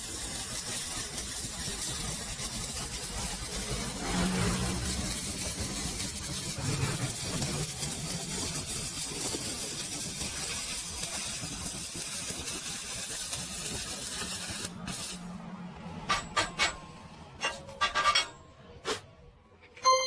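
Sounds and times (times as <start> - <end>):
welding arc crackling: 0.0 - 15.4.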